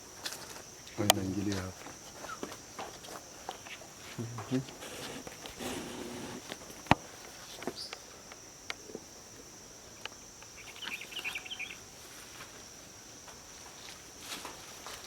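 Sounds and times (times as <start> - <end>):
high chirping: 10.6 - 11.8.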